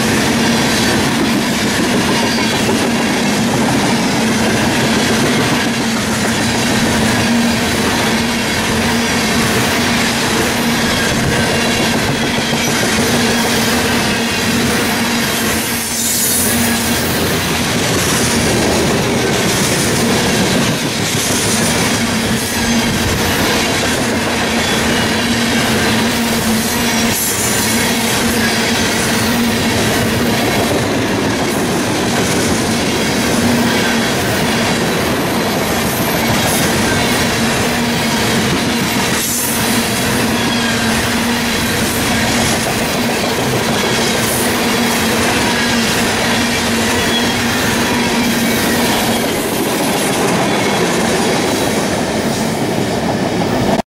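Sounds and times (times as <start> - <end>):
freight train wheels rumbling: 0.0 - 53.8.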